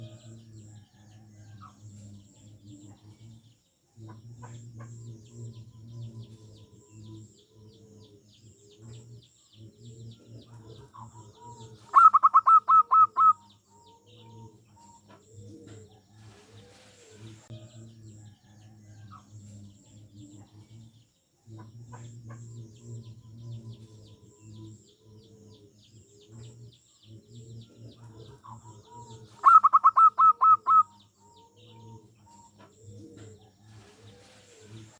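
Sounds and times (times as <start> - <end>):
doves cooing: 7.2 - 17.4, 21.8 - 34.9.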